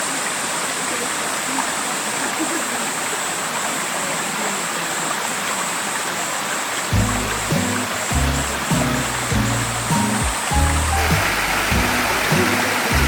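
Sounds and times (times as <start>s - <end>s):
running water rushing: 0.0s - 13.0s
high steady hiss: 6.7s - 13.0s.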